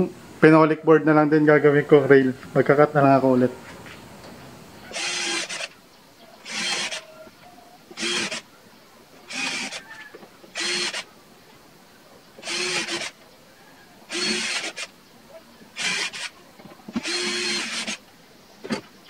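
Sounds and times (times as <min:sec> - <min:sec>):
power tool cutting wood: 0:04.9 - 0:05.8, 0:06.4 - 0:07.1, 0:08.0 - 0:08.4, 0:09.3 - 0:09.8, 0:10.6 - 0:11.1, 0:12.4 - 0:13.2, 0:14.1 - 0:14.9, 0:15.8 - 0:16.3, 0:16.9 - 0:18.0.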